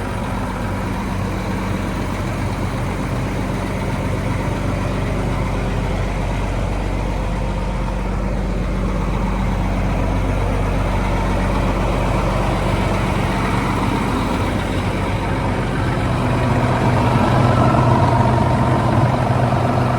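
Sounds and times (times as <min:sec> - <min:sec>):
diesel engine idling: 0:00.0 - 0:19.9.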